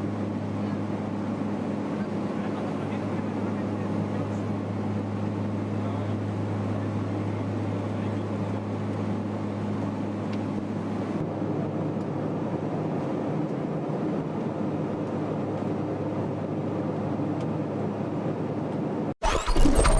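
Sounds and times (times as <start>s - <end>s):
engine drone: 0.0s - 11.6s, 19.2s - 19.9s.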